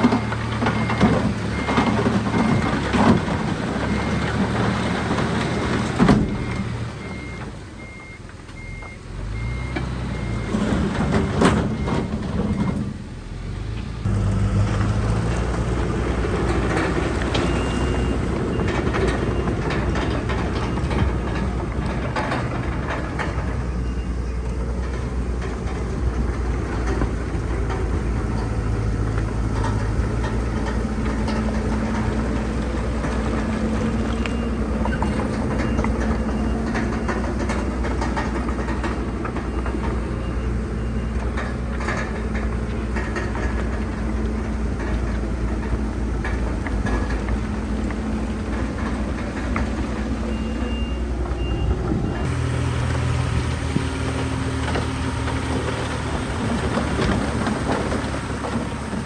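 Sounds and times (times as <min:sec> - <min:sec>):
clanks and rattles of tracks: 0:00.0 - 0:13.2, 0:14.0 - 0:59.0
heavy diesel machinery running: 0:00.0 - 0:59.0
backup alarm beeping: 0:50.3 - 0:52.5.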